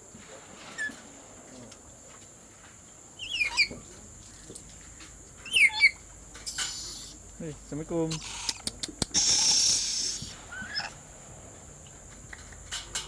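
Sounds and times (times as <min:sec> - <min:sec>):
parrot squawking: 0:05.4 - 0:07.2, 0:08.1 - 0:11.0.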